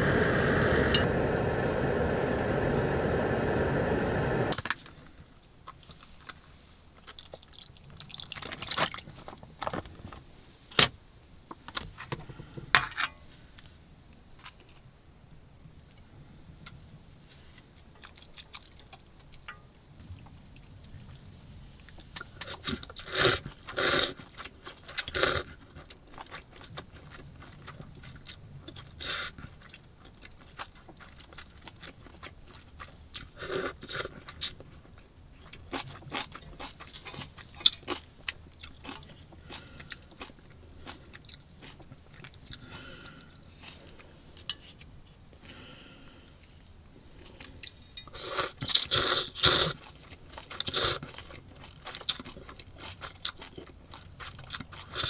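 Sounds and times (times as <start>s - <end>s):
short noisy bursts: 0.0s - 4.6s
person chewing and crunching: 7.0s - 9.0s, 21.9s - 44.8s, 47.2s - 55.0s.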